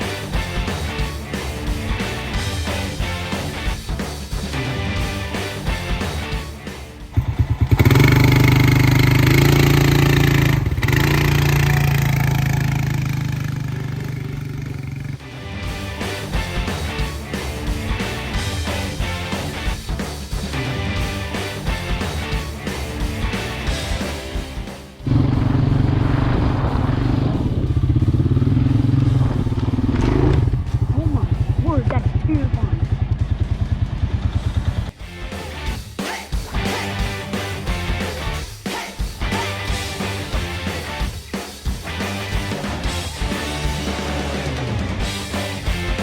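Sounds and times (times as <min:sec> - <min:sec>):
off-road vehicle engine accelerating: 0:07.1 - 0:19.4, 0:25.0 - 0:35.0.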